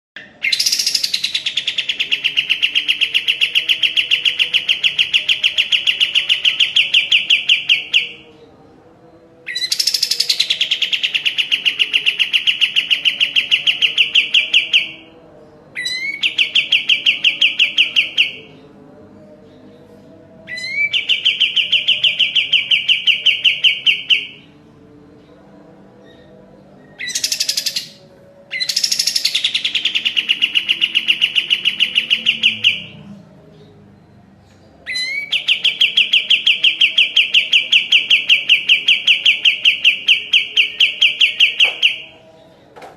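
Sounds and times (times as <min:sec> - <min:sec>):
songbird singing rapid trills: 0:00.2 - 0:08.3, 0:09.5 - 0:15.1, 0:26.8 - 0:33.0.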